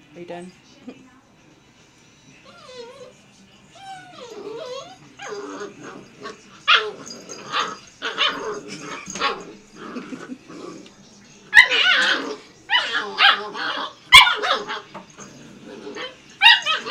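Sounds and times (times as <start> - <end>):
puppy whining: 2.4 - 16.9
puppy barking and yipping: 3.9 - 9.5, 11.5 - 16.9.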